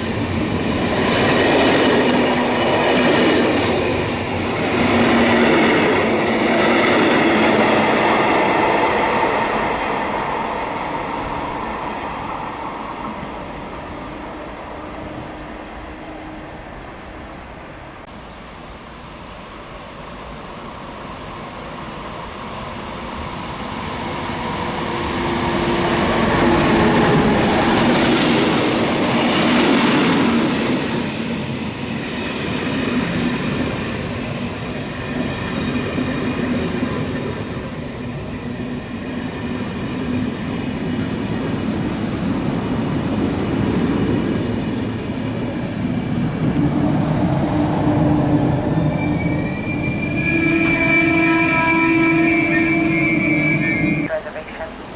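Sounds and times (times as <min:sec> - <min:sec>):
train rumbling past: 0:00.0 - 0:54.9
wheels squealing on rails: 0:18.2 - 0:54.1.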